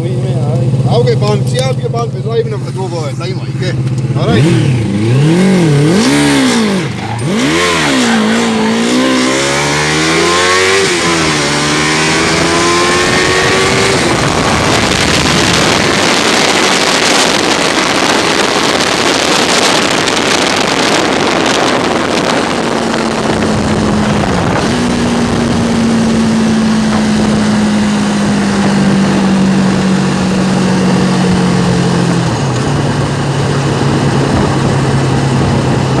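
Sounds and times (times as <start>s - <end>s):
engine accelerating hard: 0.0s - 36.0s
rushing noise: 2.5s - 24.9s.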